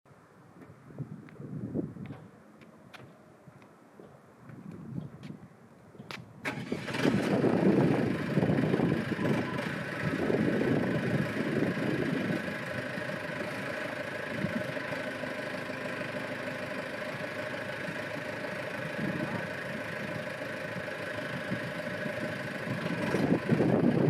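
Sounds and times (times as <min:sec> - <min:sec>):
backhoe engine starting and idling: 0:06.0 - 0:24.0.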